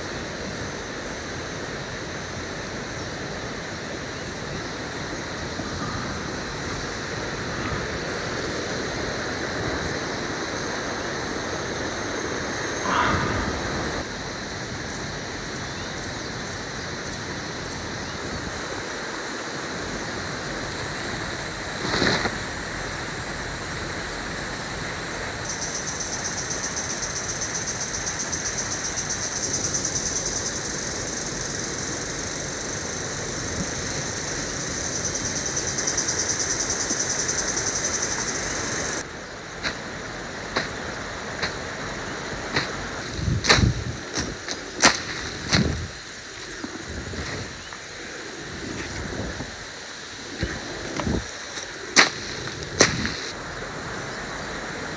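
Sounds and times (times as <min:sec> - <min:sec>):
pulsing insect drone: 0:00.0 - 0:54.9
rushing water noise: 0:49.6 - 0:54.9.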